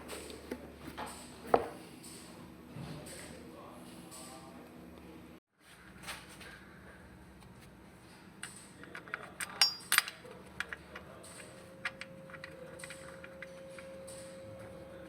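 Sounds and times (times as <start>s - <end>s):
metal tools clinking: 9.4s - 10.2s.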